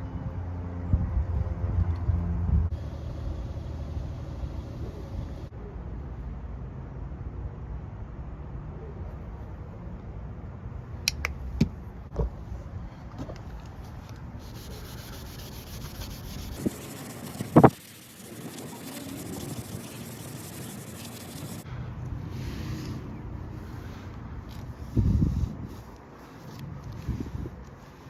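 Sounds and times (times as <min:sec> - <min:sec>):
sanding plastic scraping rub: 0:14.4 - 0:21.6.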